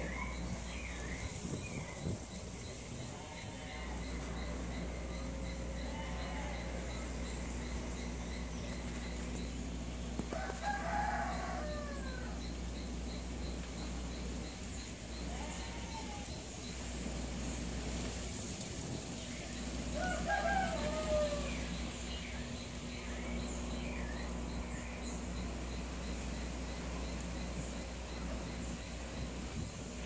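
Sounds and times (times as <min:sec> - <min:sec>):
steady low rumble: 0:00.0 - 0:10.3
bird crowing call: 0:10.2 - 0:12.6, 0:19.9 - 0:22.2.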